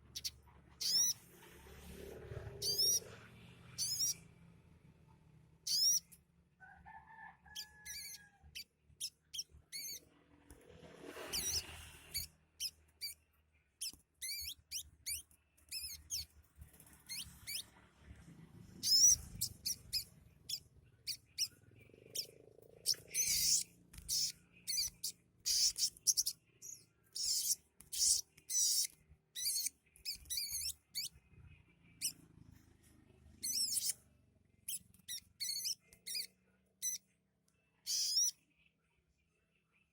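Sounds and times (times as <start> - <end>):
bird high-pitched chirps: 0.1 - 1.2, 2.6 - 3.2, 3.8 - 4.2, 5.7 - 6.2, 7.5 - 10.1, 11.2 - 17.7, 18.8 - 31.2, 31.9 - 32.2, 33.4 - 34.0, 34.7 - 37.1, 37.8 - 38.4.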